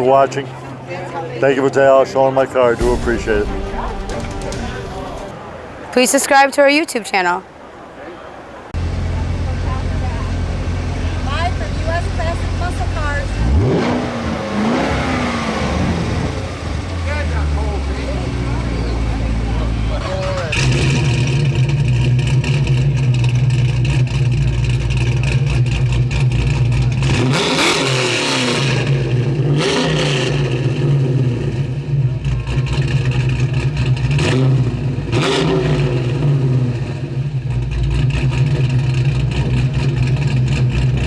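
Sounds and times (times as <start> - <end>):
car engine running: 15.3 - 41.0.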